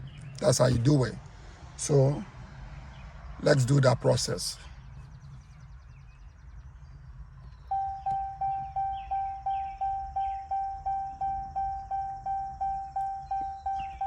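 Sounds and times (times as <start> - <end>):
low steady hum: 4.5 - 14.0
dashboard warning chime: 7.7 - 14.0.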